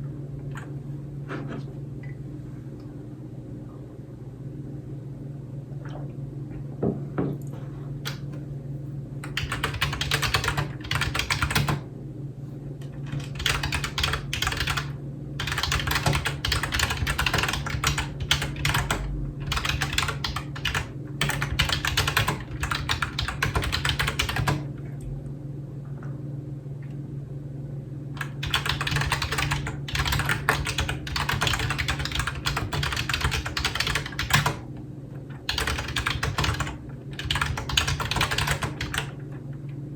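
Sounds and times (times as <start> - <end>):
computer keyboard typing: 9.2 - 11.8, 13.0 - 24.7, 28.2 - 34.6, 35.5 - 39.2.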